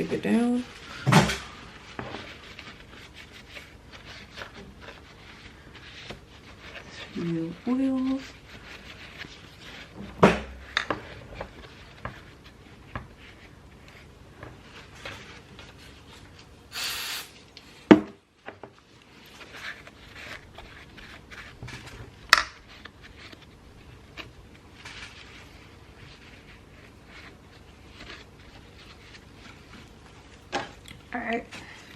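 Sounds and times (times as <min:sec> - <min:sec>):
short hiss: 0:16.7 - 0:17.4.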